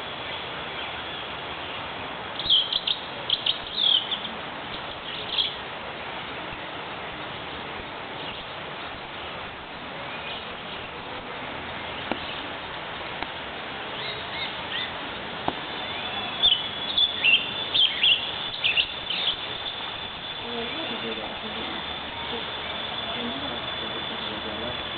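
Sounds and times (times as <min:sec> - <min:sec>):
birds chirping: 0:00.0 - 0:05.6, 0:11.7 - 0:13.2, 0:13.9 - 0:24.9
steady background hiss: 0:00.0 - 0:24.9
thin high tone: 0:15.7 - 0:24.9.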